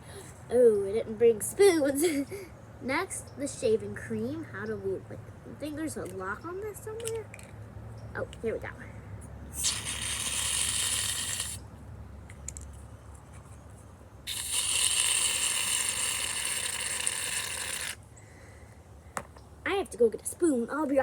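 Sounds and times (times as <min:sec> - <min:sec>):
aerosol can spraying foam: 0:09.6 - 0:11.6, 0:14.3 - 0:18.0.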